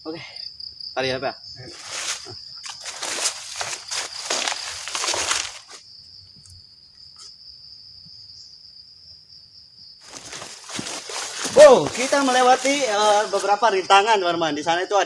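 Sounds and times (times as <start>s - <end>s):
crickets trilling: 0.0s - 15.0s
rustling noise: 1.7s - 5.8s, 10.0s - 13.8s.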